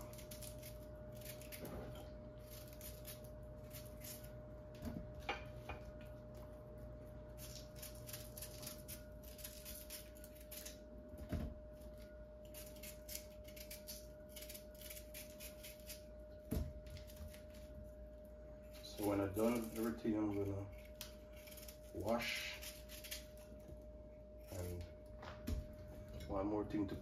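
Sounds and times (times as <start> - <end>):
knife scraping yam skin: 0.0 - 4.4, 12.4 - 16.1, 18.8 - 23.6.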